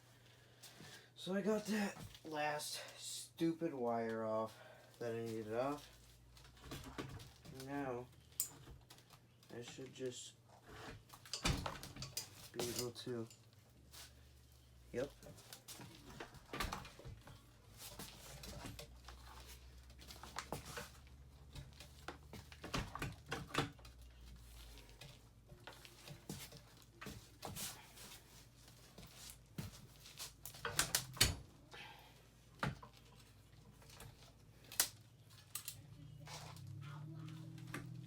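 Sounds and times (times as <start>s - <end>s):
tools clicking and knocking on metal: 8.3s - 8.8s, 10.9s - 13.5s, 30.4s - 31.5s.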